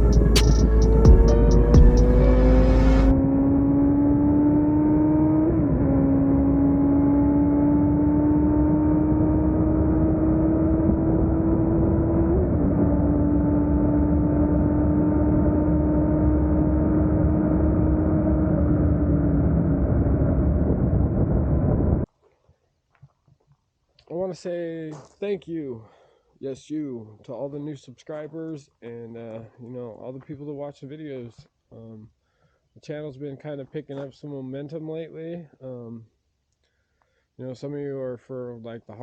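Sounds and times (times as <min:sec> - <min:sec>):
motorcycle engine at high revs: 0:00.0 - 0:19.4.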